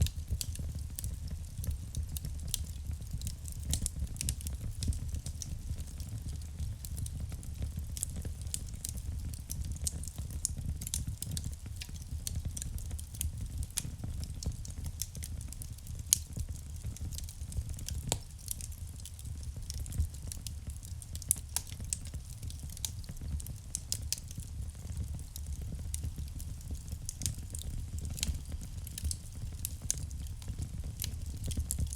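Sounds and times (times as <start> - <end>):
fire crackles and pops: 0.0 - 31.9
low rumble of flames: 0.0 - 31.9.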